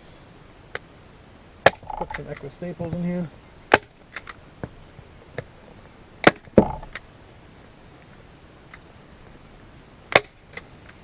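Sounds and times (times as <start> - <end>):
cricket chirping: 0.8 - 4.8, 5.8 - 10.2.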